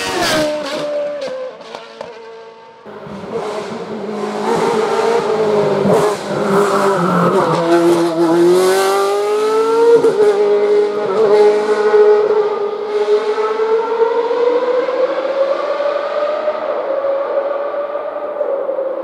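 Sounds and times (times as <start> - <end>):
racing car engine revving: 0.0 - 18.4.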